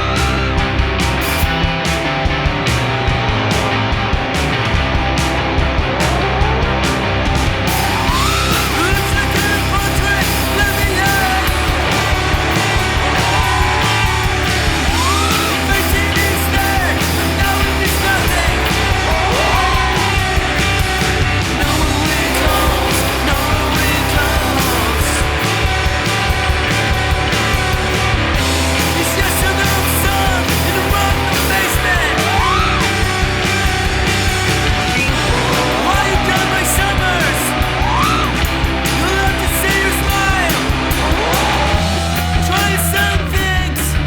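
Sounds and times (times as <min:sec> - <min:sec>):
distorted electric guitar: 0:00.0 - 0:44.0
drums: 0:00.0 - 0:44.0
person singing: 0:07.7 - 0:25.8, 0:28.7 - 0:34.2, 0:34.8 - 0:44.0.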